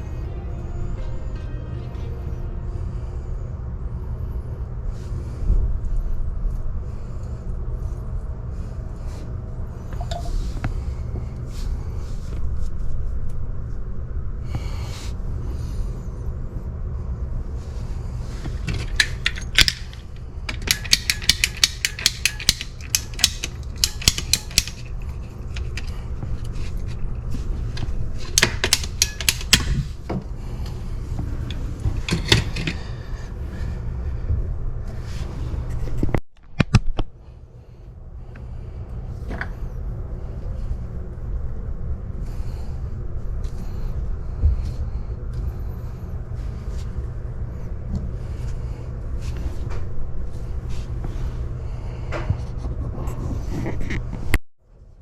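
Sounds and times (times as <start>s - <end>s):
steady low rumble: 0.0s - 36.2s, 36.9s - 55.0s
metal tools clinking: 18.7s - 25.9s.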